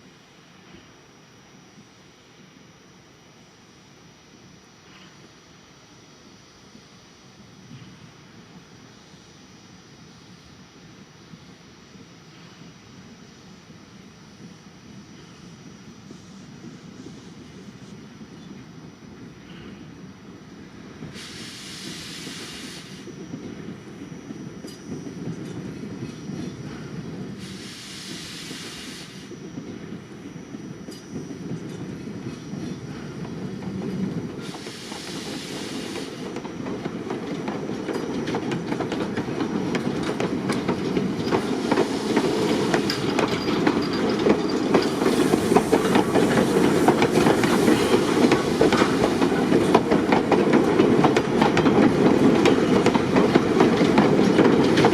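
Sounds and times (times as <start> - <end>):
steam train rolling on rails: 0.0 - 54.9
steam hissing: 19.3 - 54.9
wheels clicking over rail joints: 36.0 - 54.9.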